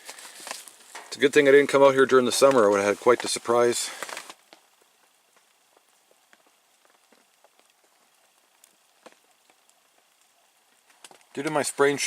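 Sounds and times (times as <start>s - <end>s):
faint ticks and clicks: 2.4s - 12.0s.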